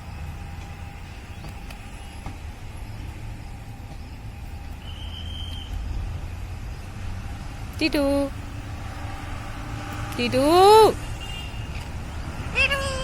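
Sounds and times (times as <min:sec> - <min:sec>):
high whistle-like note: 0:04.8 - 0:05.8.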